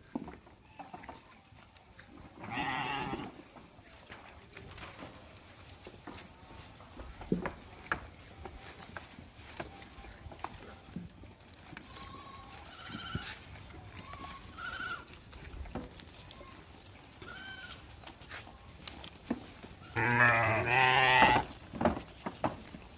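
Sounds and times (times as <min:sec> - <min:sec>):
sheep bleating: 0:02.4 - 0:03.4, 0:11.8 - 0:13.4, 0:14.0 - 0:15.1, 0:19.8 - 0:21.5.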